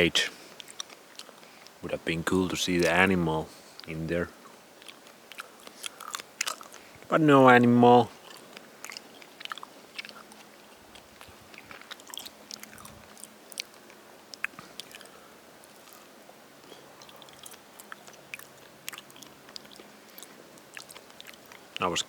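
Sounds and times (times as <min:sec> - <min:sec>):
person chewing food: 0:00.5 - 0:01.8, 0:04.8 - 0:06.9, 0:08.1 - 0:21.8.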